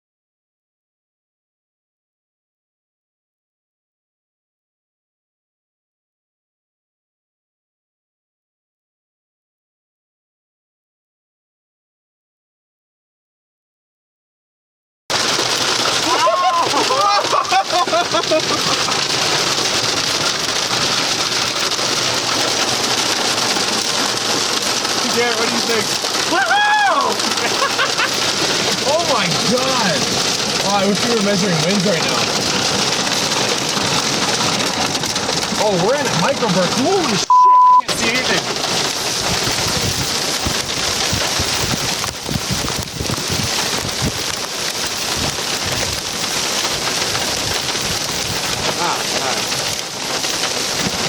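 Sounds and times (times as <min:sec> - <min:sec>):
heavy rain and hail: 0:15.1 - 0:51.0
strong wind: 0:38.4 - 0:51.0.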